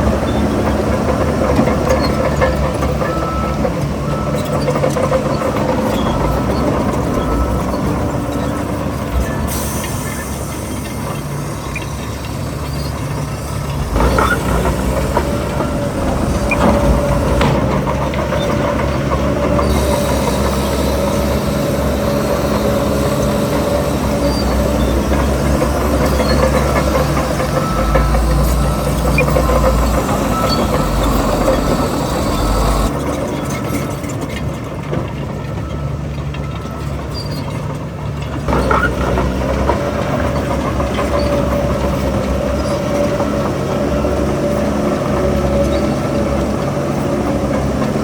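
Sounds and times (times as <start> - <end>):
steel tracks clattering: 0.0 - 35.4
bulldozer diesel engine running: 0.0 - 48.0
steady whine: 9.5 - 32.9.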